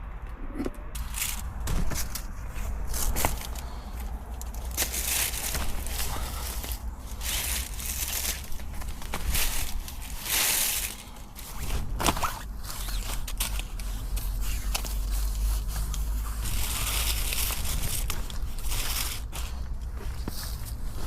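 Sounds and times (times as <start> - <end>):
low rumble: 0.0 - 12.0
crackles: 0.1 - 21.0
rustling and crunching handling: 1.0 - 21.0.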